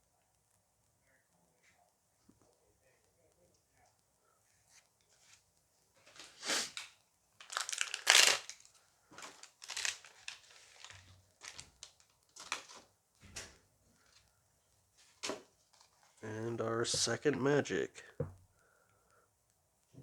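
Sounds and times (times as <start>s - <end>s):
foil pack crinkling: 6.0s - 13.0s.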